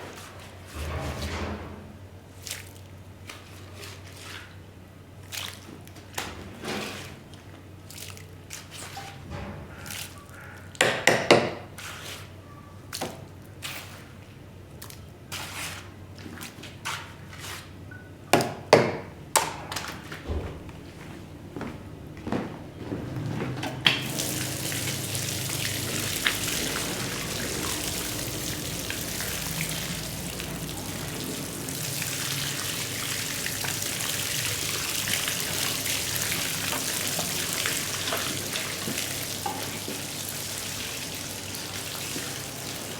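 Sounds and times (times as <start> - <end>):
squishing scraping of wet rug: 2.3 - 10.4, 11.7 - 17.8.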